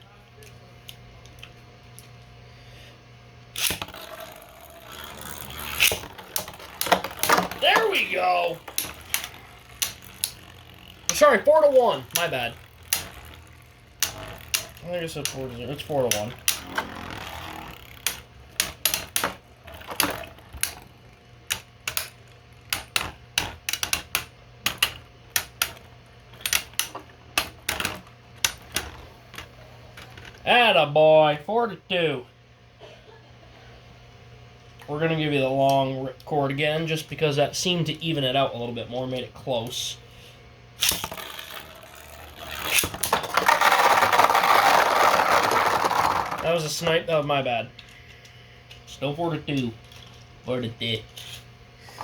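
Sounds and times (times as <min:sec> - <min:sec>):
ripcord launch zip: 0:03.6 - 0:18.2
spinning tops clacking together: 0:03.6 - 0:30.1, 0:40.8 - 0:46.7.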